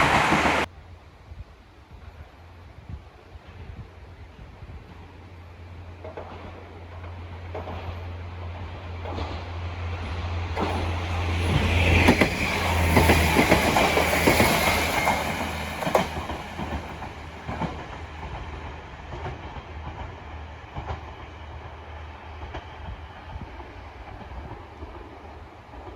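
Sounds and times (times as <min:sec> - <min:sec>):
train wheels clacking over rail joints: 0:05.8 - 0:25.9.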